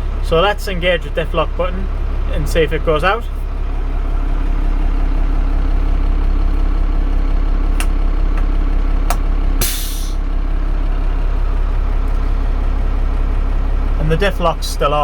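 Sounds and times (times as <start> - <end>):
truck diesel engine idling: 0.0 - 15.0
compressed air hiss: 9.6 - 10.2.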